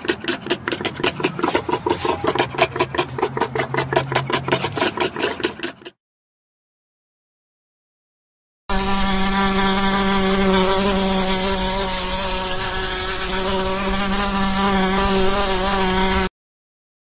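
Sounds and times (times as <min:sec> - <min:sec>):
wasp buzzing in flight: 0:08.7 - 0:16.3.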